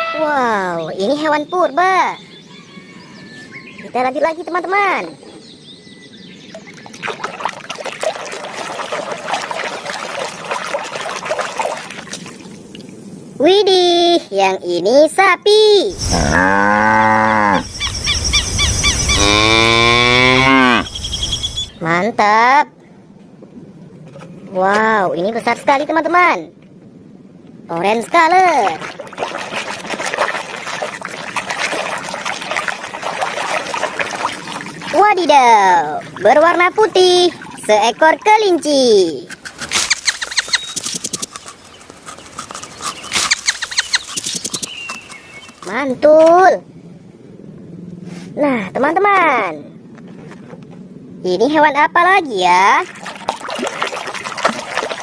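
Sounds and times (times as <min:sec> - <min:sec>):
water splashing and trickling: 0:06.4 - 0:13.4, 0:27.6 - 0:46.5, 0:52.3 - 0:55.0.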